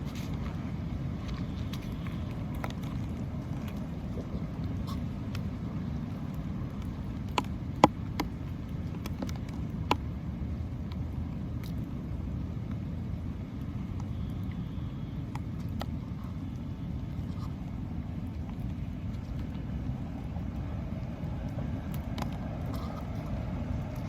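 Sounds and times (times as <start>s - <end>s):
low outdoor rumble: 0.0s - 24.0s.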